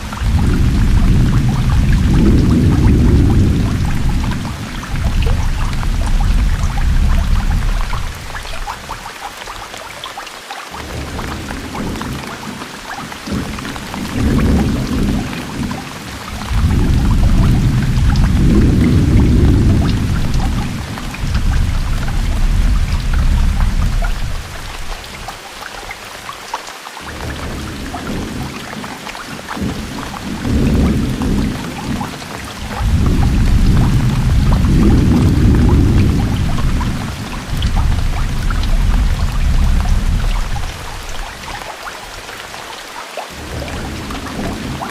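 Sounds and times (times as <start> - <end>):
low rolling thunder: 0.0 - 9.0, 13.3 - 25.3, 29.6 - 41.5, 43.4 - 44.9
rain pattering on water: 0.0 - 44.9
low rumble: 0.1 - 8.7, 16.3 - 25.0, 32.6 - 41.2.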